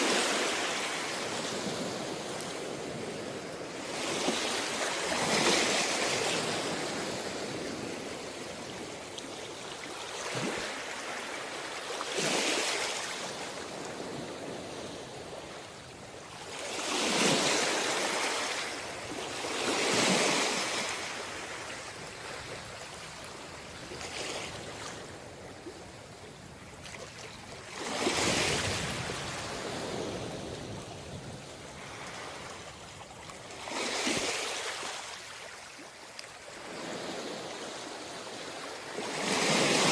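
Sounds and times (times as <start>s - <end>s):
sea waves breaking on a beach: 0.0s - 39.9s.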